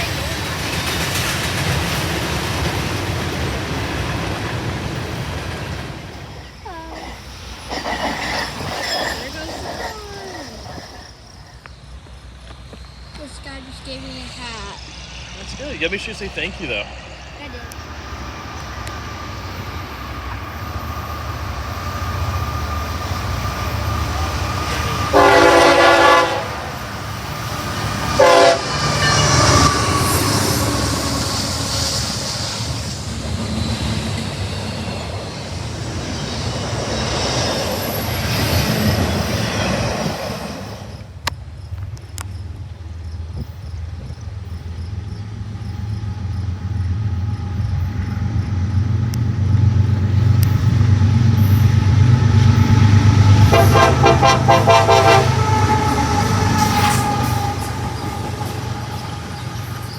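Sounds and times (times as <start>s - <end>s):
train wheels rumbling: 0.0s - 59.9s
train horn blasts: 24.6s - 27.0s, 27.9s - 31.8s, 52.6s - 59.8s.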